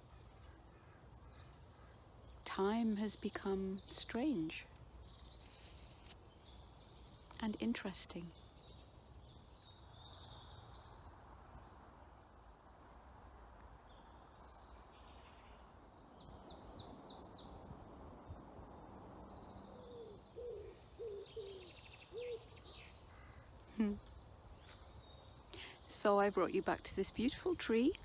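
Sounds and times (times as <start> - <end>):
birds chirping and trilling: 19.0 - 28.0.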